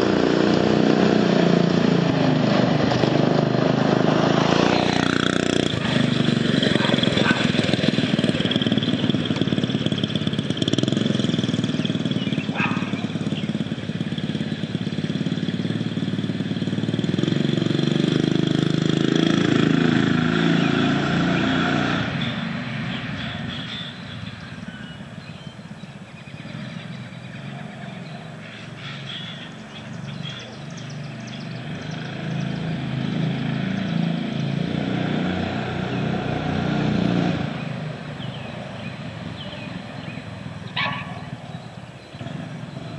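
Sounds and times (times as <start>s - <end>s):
mini bike engine: 0.0s - 42.9s.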